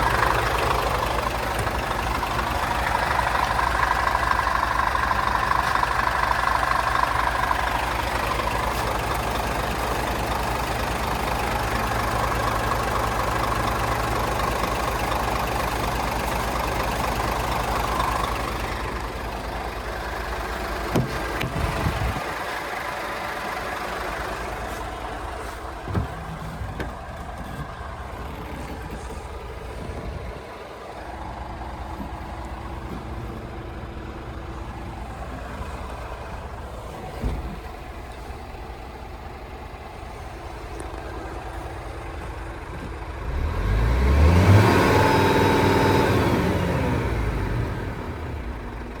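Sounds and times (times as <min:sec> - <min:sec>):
diesel truck engine idling: 0:00.0 - 0:49.0
short thumps: 0:20.9 - 0:22.2, 0:25.7 - 0:29.2.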